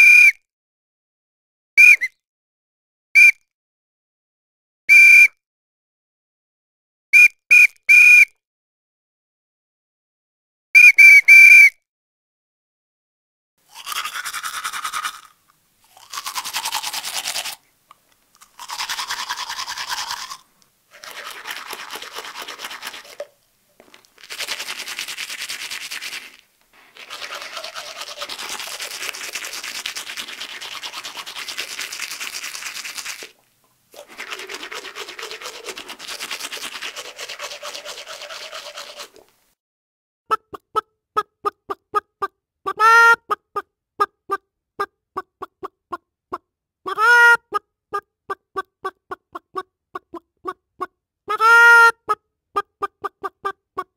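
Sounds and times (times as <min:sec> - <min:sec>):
rattling mouth buzz: 0:18.4 - 0:23.3, 0:24.2 - 0:33.2.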